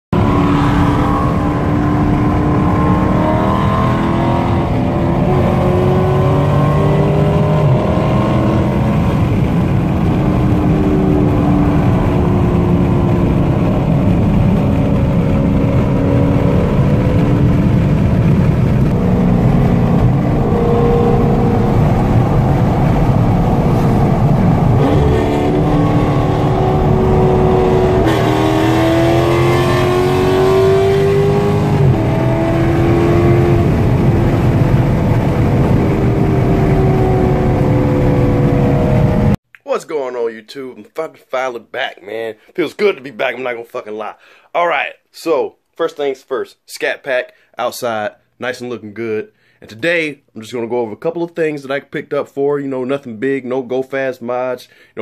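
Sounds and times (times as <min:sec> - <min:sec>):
road and wind noise: 0:00.1 - 0:39.4
car engines running: 0:00.2 - 0:39.4.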